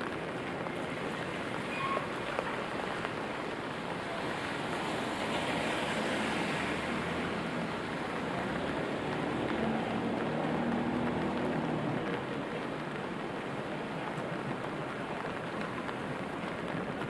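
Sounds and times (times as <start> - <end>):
car tyres hissing on wet road: 0.0 - 17.0
steady rain falling: 0.0 - 17.0.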